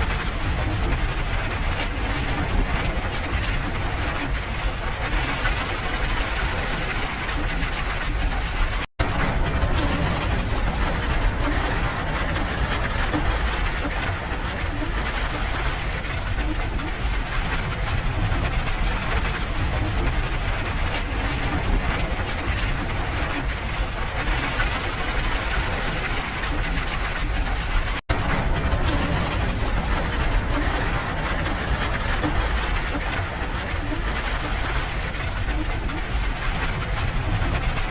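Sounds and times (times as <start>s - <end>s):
steady rain: 0.0s - 37.9s
deep low rumble: 9.0s - 23.4s, 24.4s - 37.9s.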